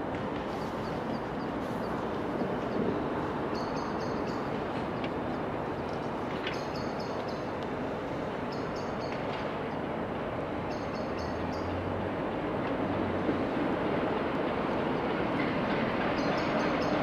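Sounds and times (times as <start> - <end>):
distant train rumble: 0.0 - 17.0
high-pitched train squeals: 0.5 - 4.6, 15.4 - 17.0.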